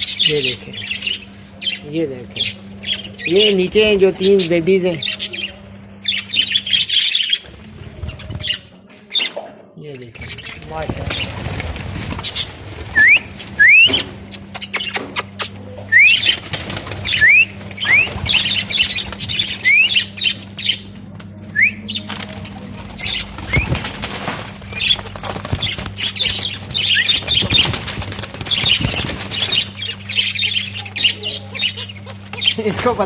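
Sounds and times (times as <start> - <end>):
budgerigars chattering and chirping: 0.0 - 9.3, 10.0 - 20.9, 21.6 - 33.0
steady low hum: 0.0 - 33.0
wings flapping: 6.0 - 8.7, 10.2 - 33.0.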